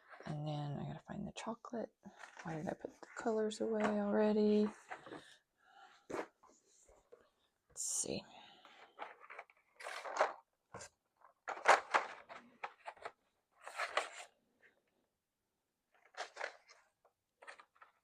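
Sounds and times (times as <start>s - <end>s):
coloured pencils rattling: 8.8s - 14.3s, 16.0s - 18.0s.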